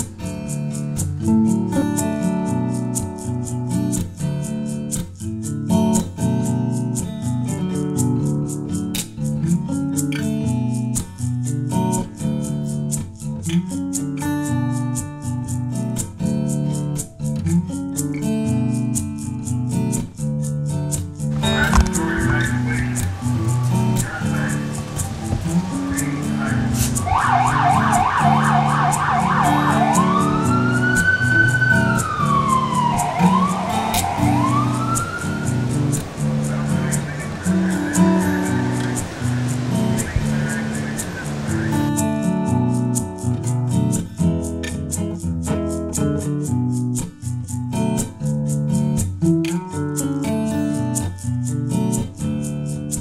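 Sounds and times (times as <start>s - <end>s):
music with steady beat and bass: 0.0s - 53.0s
emergency vehicle siren: 21.4s - 42.0s.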